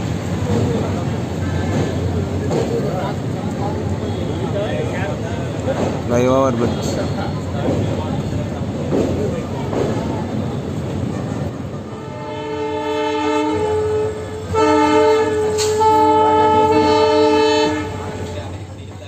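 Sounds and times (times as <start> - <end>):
moving train rumble: 0.0 - 19.0
train horn chord: 11.9 - 18.4.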